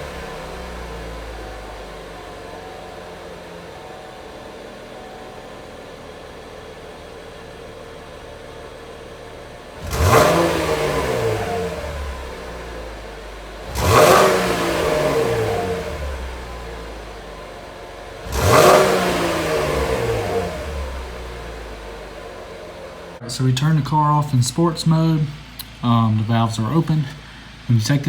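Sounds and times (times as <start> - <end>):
car exhaust idling and revving: 0.0 - 28.0.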